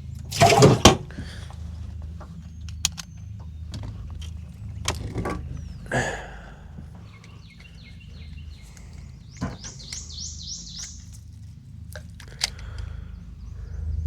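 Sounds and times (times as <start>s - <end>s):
bird singing: 0.0s - 14.0s
low steady hum: 0.0s - 14.0s
sharp clicks: 2.5s - 5.0s, 7.1s - 13.1s.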